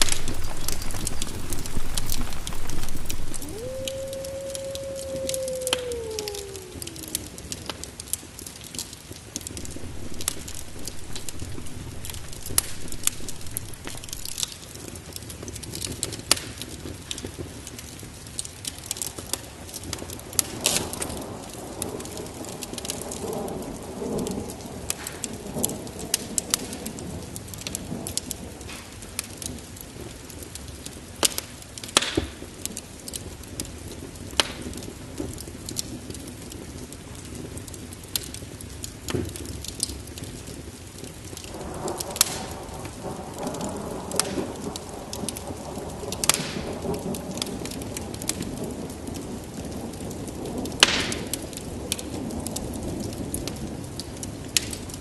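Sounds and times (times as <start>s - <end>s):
thunder rumbling: 0.0s - 7.8s, 9.5s - 14.6s, 41.4s - 53.4s
sharp crackles: 0.0s - 17.3s, 37.2s - 55.0s
heavy rain falling: 0.0s - 31.1s, 32.4s - 55.0s.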